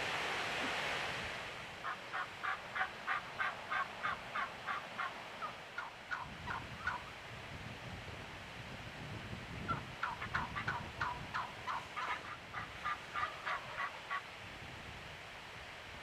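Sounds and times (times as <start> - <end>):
wild turkey calling: 1.8 - 7.1, 9.7 - 14.3.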